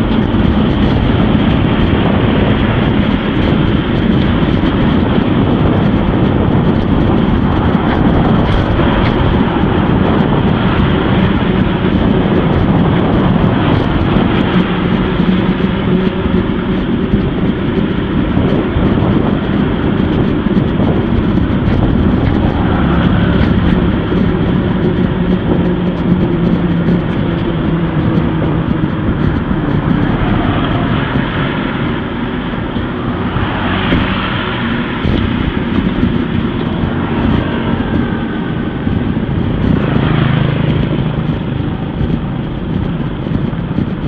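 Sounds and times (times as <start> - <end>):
traffic engine hum: 0.0 - 44.0
wind and bicycle road rumble: 0.0 - 44.0.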